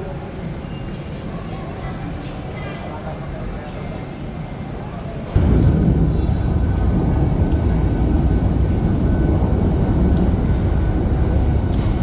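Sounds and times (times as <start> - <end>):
train rumbling: 5.3 - 12.0.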